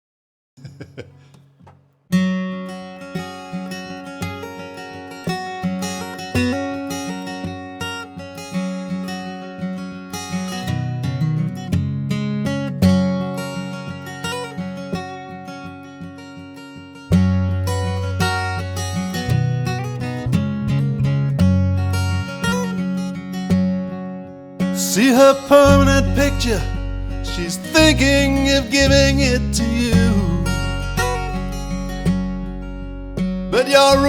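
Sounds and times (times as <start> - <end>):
strummed acoustic guitar: 0.6 - 34.0.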